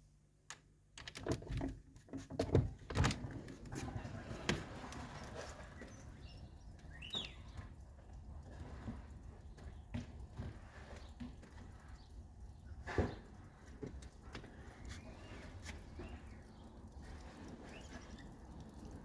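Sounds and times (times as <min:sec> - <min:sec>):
irregular knocks and thumps: 0:08.8 - 0:11.9.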